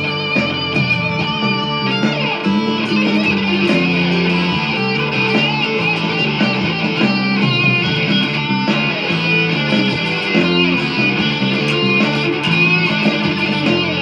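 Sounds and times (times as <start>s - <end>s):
band backing track with bass: 0.0s - 14.0s
electric guitar lead with vibrato: 0.0s - 14.0s.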